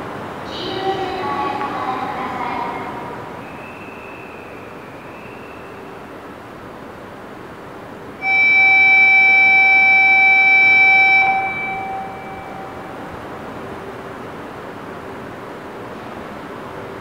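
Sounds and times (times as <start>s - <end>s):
train running noise: 0.0s - 17.0s
loud steady horn tone: 8.2s - 13.7s.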